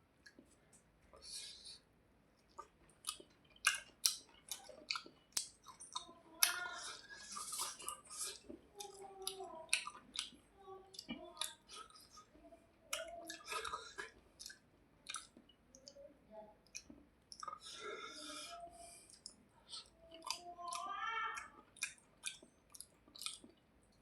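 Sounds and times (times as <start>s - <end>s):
mouth clicks and smacks: 2.4s - 12.3s, 12.9s - 16.0s, 16.6s - 17.7s, 19.0s - 24.0s
person chewing food: 2.4s - 16.0s, 16.6s - 24.0s.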